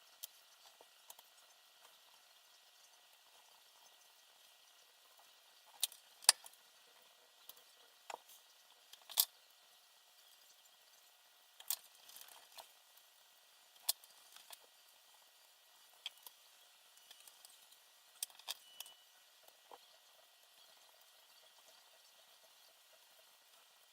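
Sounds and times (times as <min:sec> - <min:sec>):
small clicks and taps: 0:00.2 - 0:02.2, 0:04.7 - 0:06.6.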